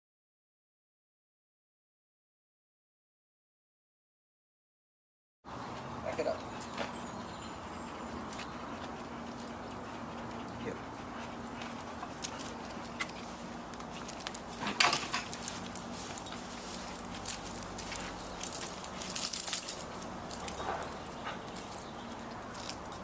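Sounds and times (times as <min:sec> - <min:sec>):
dog collar and leash jingling: 0:06.2 - 0:23.0.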